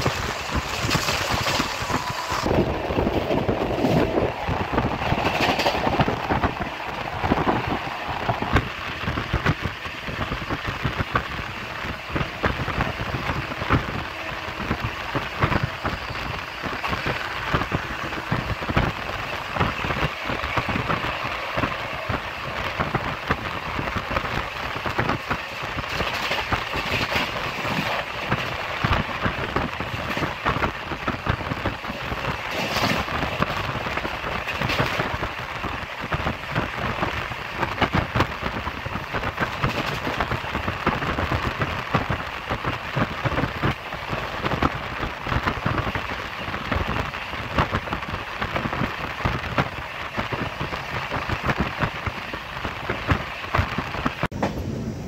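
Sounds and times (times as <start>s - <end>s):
passenger train running at speed: 0.0s - 55.0s.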